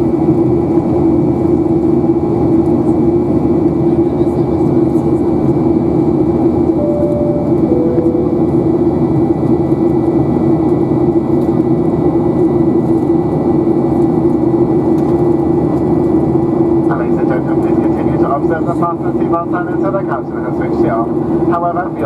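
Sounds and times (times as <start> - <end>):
jet engines droning in cabin: 0.0 - 22.0
two-note cabin chime: 6.8 - 9.2.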